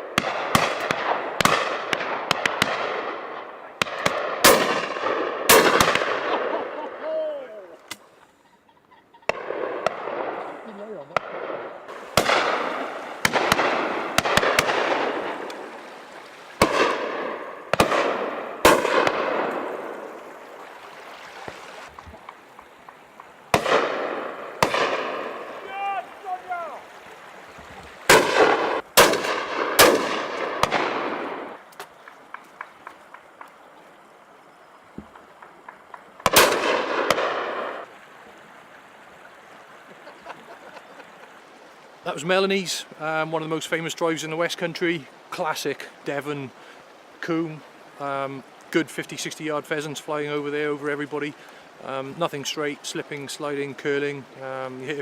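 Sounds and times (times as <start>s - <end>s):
distant gunshots crackling: 0.0s - 7.0s, 9.3s - 20.5s, 22.9s - 25.7s, 28.1s - 31.6s, 35.6s - 37.9s
shotgun shots echoing: 0.0s - 7.0s, 9.3s - 15.9s, 16.5s - 20.4s, 23.5s - 25.7s, 28.1s - 31.6s, 36.2s - 37.8s.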